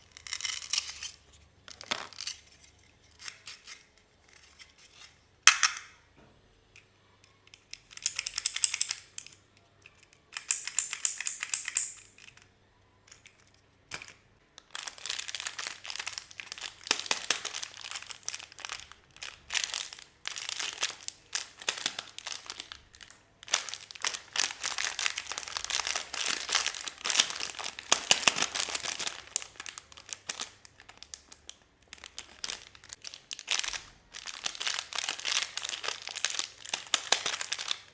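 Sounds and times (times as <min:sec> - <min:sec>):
wrapper crinkling and tearing: 0:00.0 - 0:02.6, 0:14.6 - 0:37.9.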